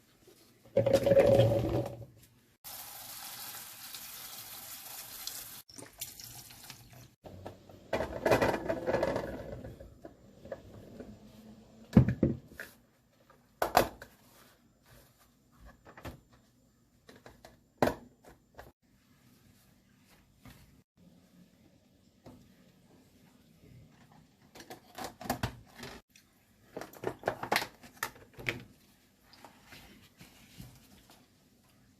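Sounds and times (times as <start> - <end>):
tap water running into sink: 2.7 - 7.1.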